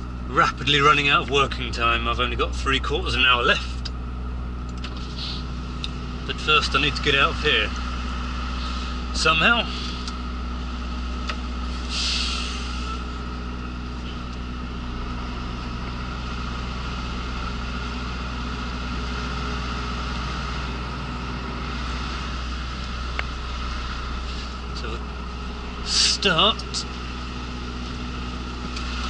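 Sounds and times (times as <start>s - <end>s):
diesel engine running: 0.0s - 29.0s
air brakes hissing: 4.9s - 5.6s, 8.5s - 10.1s, 11.6s - 13.2s, 24.0s - 24.7s.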